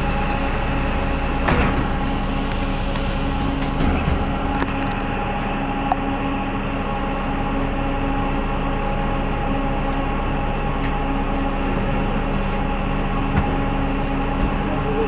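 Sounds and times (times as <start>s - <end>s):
bus engine and road hum: 0.0s - 15.0s.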